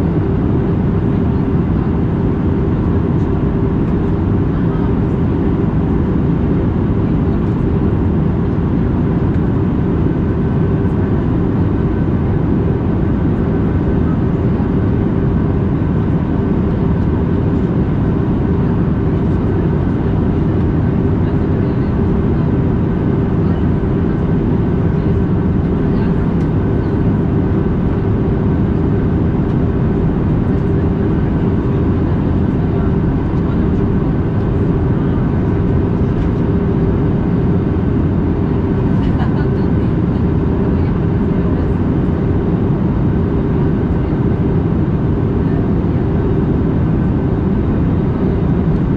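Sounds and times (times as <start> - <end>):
airplane cabin engine drone: 0.0 - 48.9
faint steady whines: 0.0 - 48.9.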